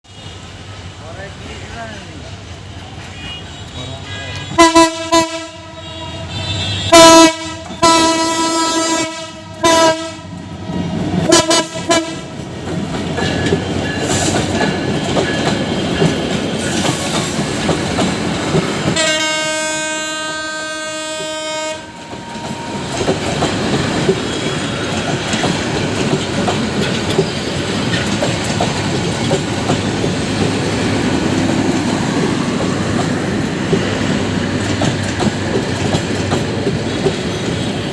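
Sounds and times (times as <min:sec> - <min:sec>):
train rumble and wheel clatter: 0:00.1 - 0:37.9
locomotive horn blasts: 0:03.0 - 0:10.4, 0:11.2 - 0:12.3, 0:19.0 - 0:23.0.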